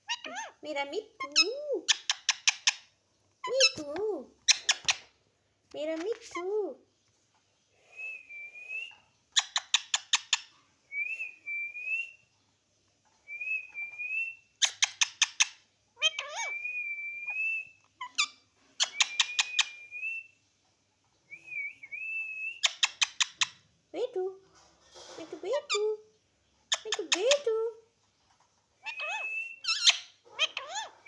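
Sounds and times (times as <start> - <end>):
parrot screeching: 0.0 - 0.6, 16.0 - 16.6, 28.8 - 31.0
parrot whistling: 16.0 - 18.2, 18.8 - 20.3, 28.8 - 31.0.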